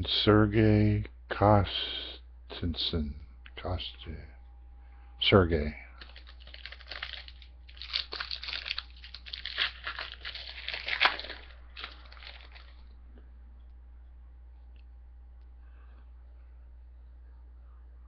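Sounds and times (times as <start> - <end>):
foil wrapper crinkling and tearing: 6.0 - 12.9.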